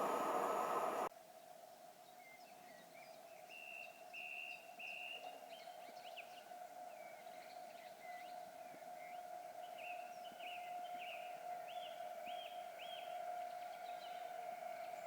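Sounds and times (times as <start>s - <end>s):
steady low hum: 0.0s - 1.1s.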